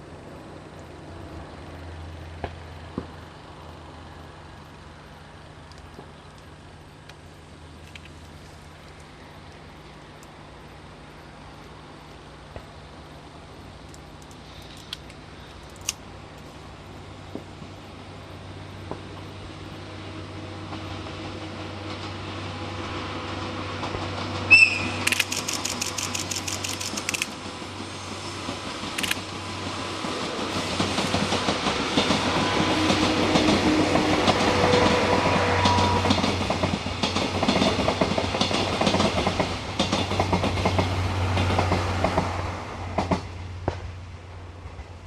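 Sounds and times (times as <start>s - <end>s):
train wheels clattering: 22.8s - 43.9s
quick run of even clicks: 25.0s - 27.4s.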